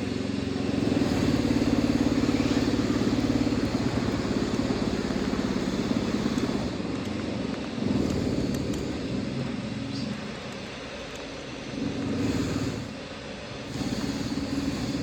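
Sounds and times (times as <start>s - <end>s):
electric drill running: 0.0s - 9.7s.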